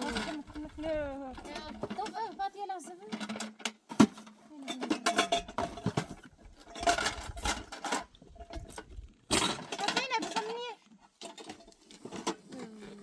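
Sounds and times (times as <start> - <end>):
pots and dishes clinking: 4.7 - 8.1.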